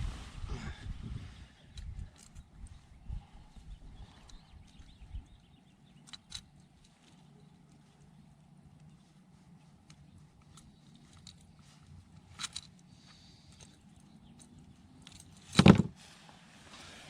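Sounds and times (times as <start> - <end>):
clicks and rattles of fishing tackle: 4.2 - 8.2, 9.8 - 15.9.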